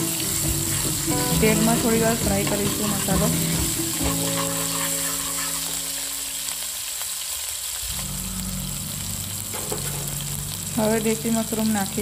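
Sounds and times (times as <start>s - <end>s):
spatula stirring in metal pan: 0.0s - 6.2s
paste sizzling in hot oil: 0.0s - 12.0s.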